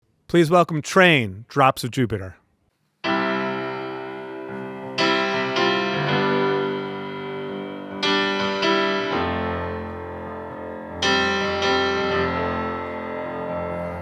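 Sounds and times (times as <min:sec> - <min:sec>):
piano chords ringing: 0:03.0 - 0:14.0.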